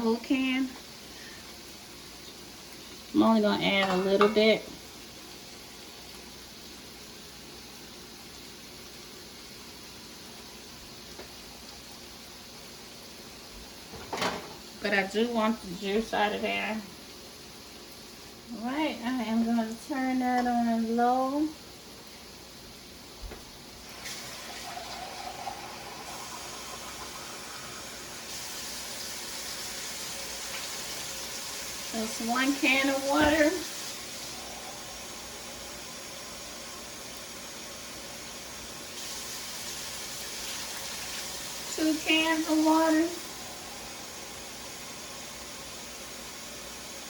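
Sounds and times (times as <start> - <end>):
chili hissing in a pot: 0.0 - 47.0.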